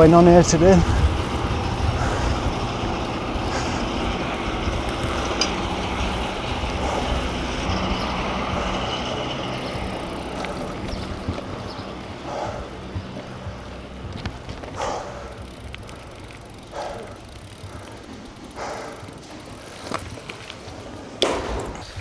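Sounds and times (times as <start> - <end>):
wind noise on microphone: 0.0 - 14.8
bicycle road noise: 0.0 - 22.0.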